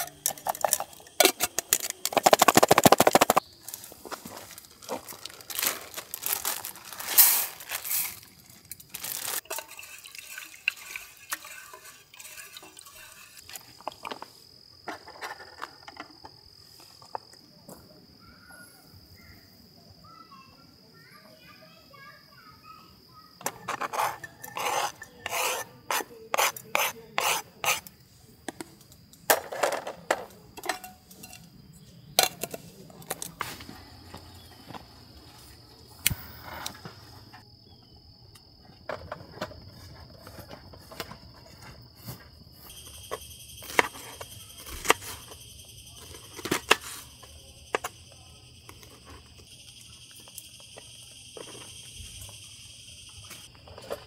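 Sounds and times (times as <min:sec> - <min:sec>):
insects buzzing: 0:00.0 - 0:17.4, 0:39.5 - 0:54.0
cookware knocking and clattering: 0:29.3 - 0:31.4.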